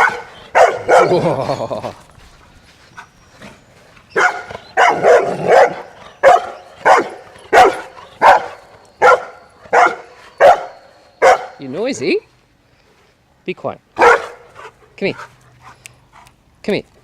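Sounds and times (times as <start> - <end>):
dog barking: 0.0 - 1.2, 4.2 - 11.6, 14.0 - 14.5.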